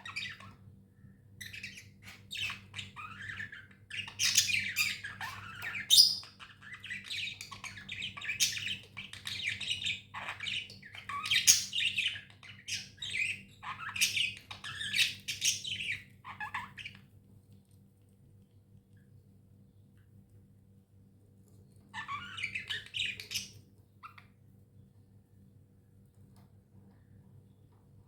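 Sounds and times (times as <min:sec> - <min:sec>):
budgies chattering and squawking: 0:00.0 - 0:00.6, 0:01.4 - 0:17.0, 0:22.0 - 0:24.2.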